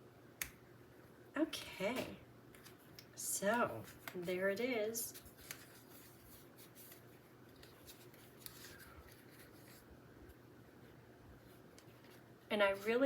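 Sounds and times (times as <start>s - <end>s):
paper card rustling and clicking: 2.5s - 4.4s, 5.1s - 9.8s.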